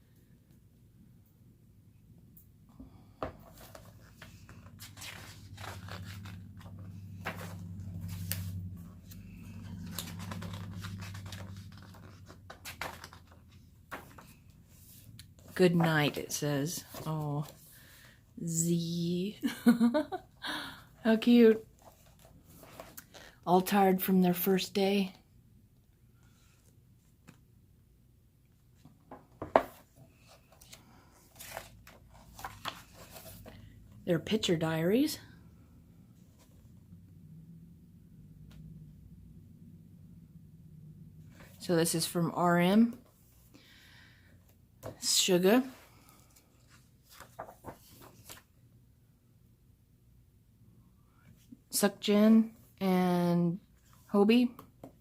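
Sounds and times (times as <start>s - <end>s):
paper rustling and crinkling: 3.3s - 16.2s, 29.4s - 33.7s, 46.1s - 48.5s.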